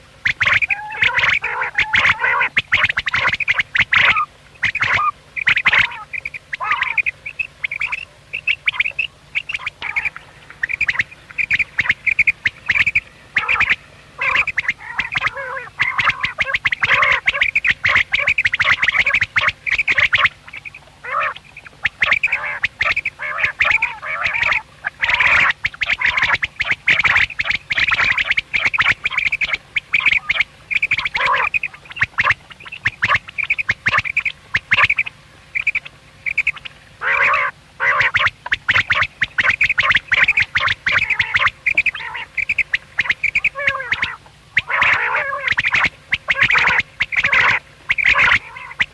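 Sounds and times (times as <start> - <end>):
quails calling: 0.0 - 48.9.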